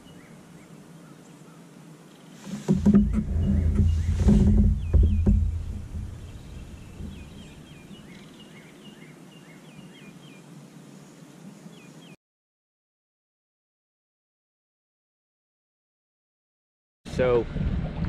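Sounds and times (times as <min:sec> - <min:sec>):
small birds chirping: 0:00.0 - 0:12.2
low rumble: 0:02.7 - 0:08.0.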